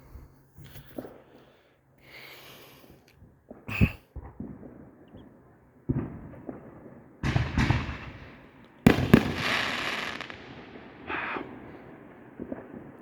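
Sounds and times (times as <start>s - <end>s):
fireworks bangs: 5.9s - 13.0s.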